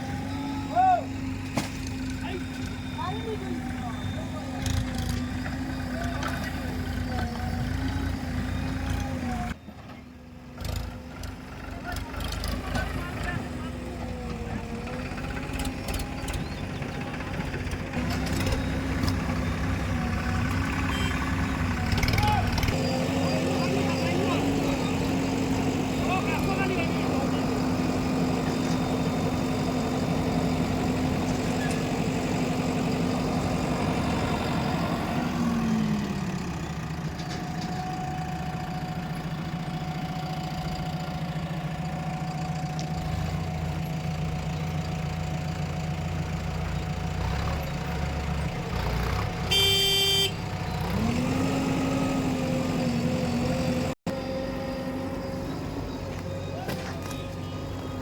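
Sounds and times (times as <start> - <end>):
diesel engine running: 0.0 - 58.0
short horn honk: 20.9 - 21.3, 49.5 - 50.4.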